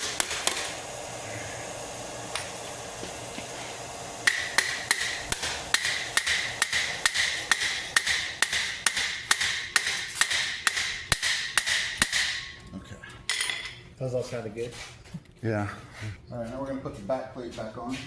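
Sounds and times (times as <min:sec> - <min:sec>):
hammer striking steel: 0:04.2 - 0:12.6.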